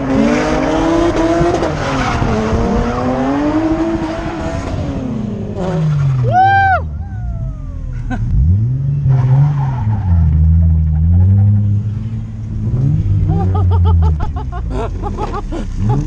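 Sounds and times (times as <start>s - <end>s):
tyres skidding and squealing: 5.6s - 16.0s
car engine revving: 6.9s - 16.0s.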